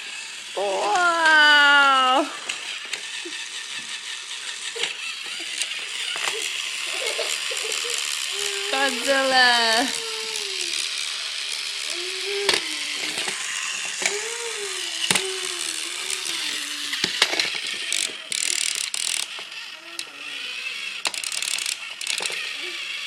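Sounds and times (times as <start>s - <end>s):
toy train whirring clatter: 0.0s - 23.0s
sharp clicks: 14.9s - 20.1s, 21.0s - 22.4s.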